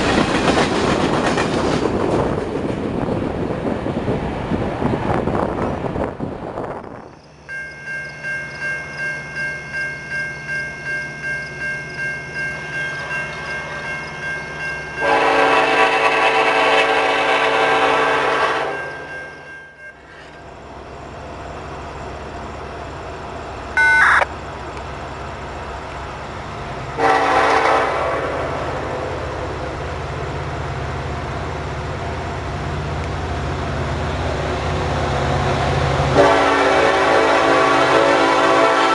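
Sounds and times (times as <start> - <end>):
crossing bell ringing: 7.2 - 15.7, 18.4 - 20.4, 23.8 - 24.2
locomotive horn: 15.0 - 19.0, 27.0 - 29.1, 36.1 - 38.9.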